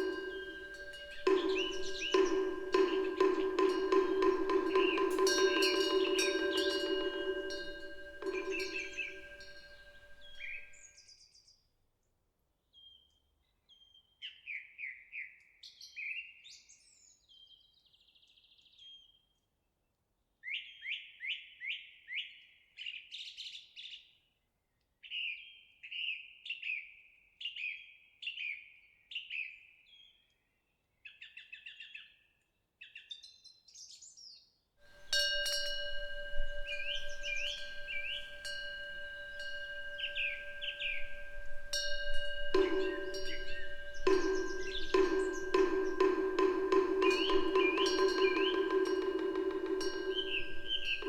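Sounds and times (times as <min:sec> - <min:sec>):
songbirds chirping: 0:00.0 - 0:10.8, 0:35.0 - 0:51.0
wind bell ringing: 0:00.0 - 0:10.8, 0:34.9 - 0:51.0.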